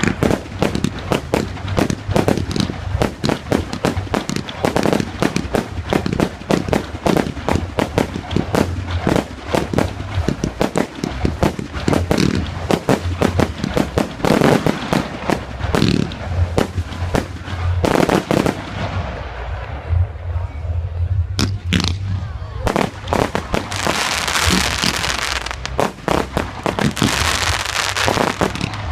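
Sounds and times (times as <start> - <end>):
fireworks bangs and crackling: 0.0 - 20.2, 21.4 - 28.9.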